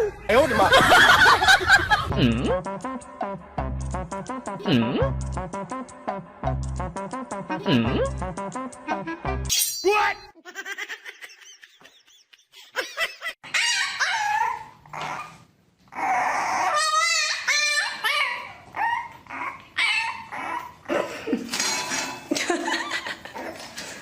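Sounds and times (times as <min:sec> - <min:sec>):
dog barking yipping and whining: 0:13.4 - 0:15.4, 0:16.0 - 0:20.8.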